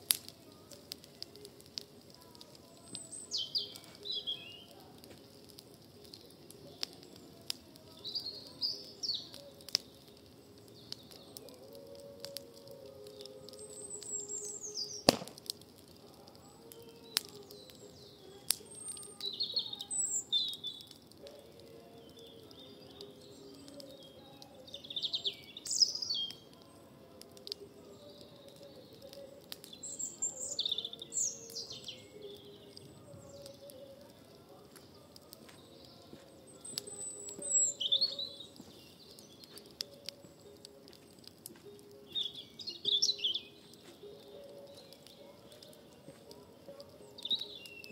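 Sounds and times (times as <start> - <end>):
birds chirping: 0.0 - 47.9
sharp pops: 14.9 - 15.8.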